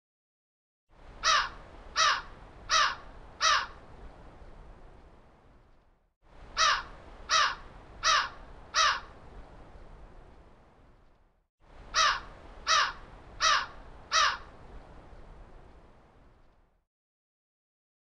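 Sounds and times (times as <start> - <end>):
bird calling harshly: 1.2 - 3.7, 6.6 - 9.1, 12.0 - 14.4.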